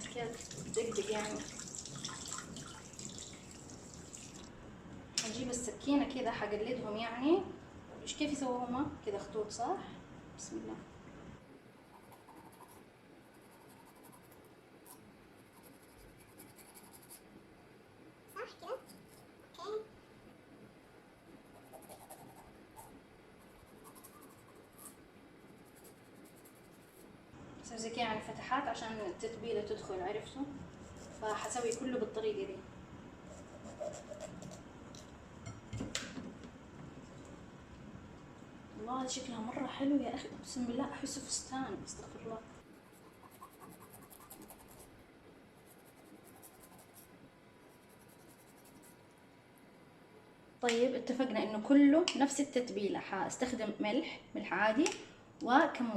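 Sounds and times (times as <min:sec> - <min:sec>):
knife scratching raw fish: 0:23.4 - 0:26.9, 0:30.8 - 0:31.6, 0:33.3 - 0:34.6, 0:42.8 - 0:44.9, 0:47.7 - 0:49.0.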